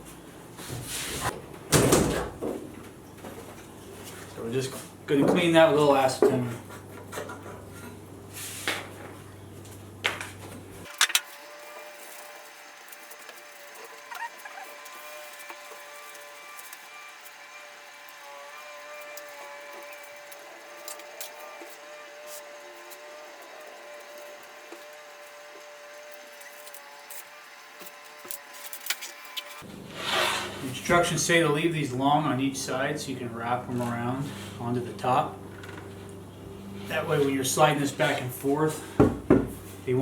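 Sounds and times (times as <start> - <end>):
rag wiping surface: 29.9 - 30.9.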